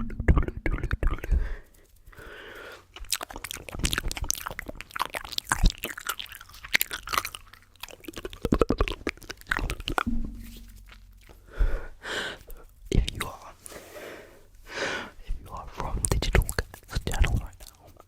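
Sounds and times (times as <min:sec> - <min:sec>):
wet mouth clicks and smacks: 0:00.0 - 0:02.3, 0:02.9 - 0:11.4, 0:15.8 - 0:18.0.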